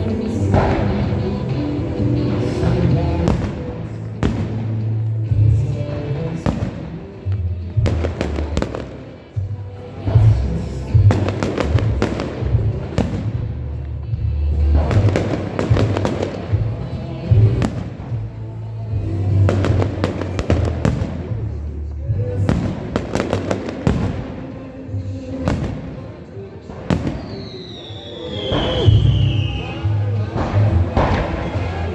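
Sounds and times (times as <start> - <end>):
loud music with heavy bass: 0.0 - 24.1
fireworks bangs and crackling: 0.0 - 31.9.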